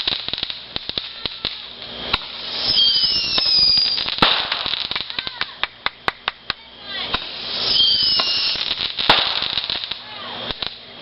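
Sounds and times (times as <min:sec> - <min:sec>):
firework bang: 0:00.0 - 0:10.8
fireworks crackling pops: 0:00.0 - 0:11.0
firework whistle gliding down: 0:00.8 - 0:05.5, 0:06.8 - 0:10.7.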